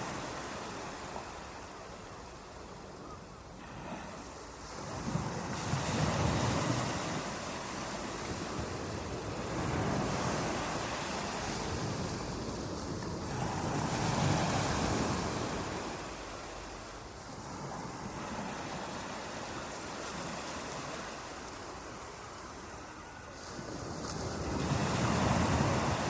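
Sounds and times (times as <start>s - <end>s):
ocean waves breaking: 3.6s - 26.0s.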